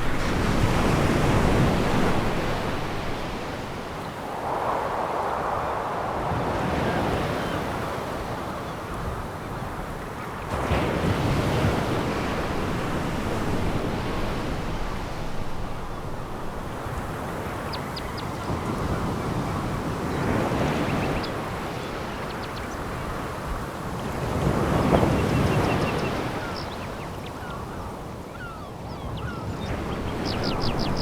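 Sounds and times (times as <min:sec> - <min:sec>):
waves breaking on pebbles: 0:00.0 - 0:05.5, 0:10.5 - 0:17.7.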